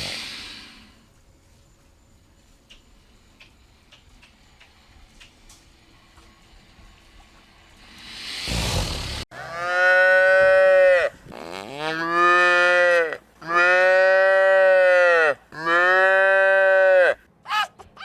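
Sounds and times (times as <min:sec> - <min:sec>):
breathy rush of noise: 0:00.0 - 0:01.1, 0:07.7 - 0:09.3.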